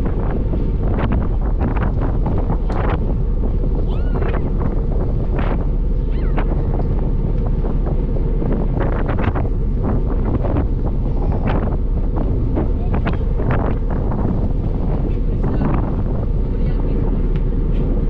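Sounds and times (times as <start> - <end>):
steady low rumble: 0.0 - 18.0
wind buffeting microphone: 0.0 - 18.0.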